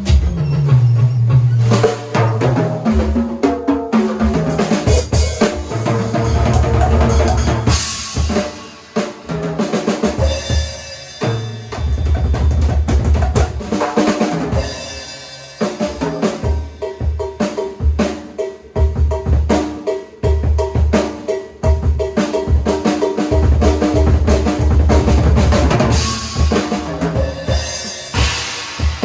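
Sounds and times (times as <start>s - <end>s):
snare drum strokes: 1.6s - 10.3s
ringing cymbals: 4.5s - 9.0s, 10.2s - 12.6s, 14.6s - 17.4s, 25.9s - 29.0s.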